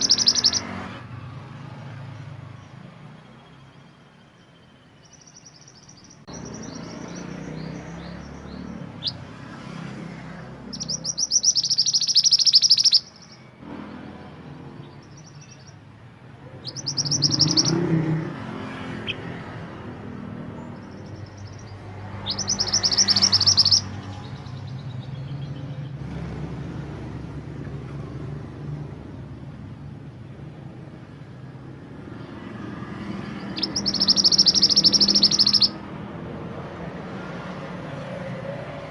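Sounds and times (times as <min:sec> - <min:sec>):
songbird trilling: 0:00.0 - 0:00.7, 0:04.4 - 0:09.3, 0:10.6 - 0:13.5, 0:14.8 - 0:15.8, 0:16.5 - 0:18.1, 0:20.5 - 0:25.9, 0:33.2 - 0:35.8.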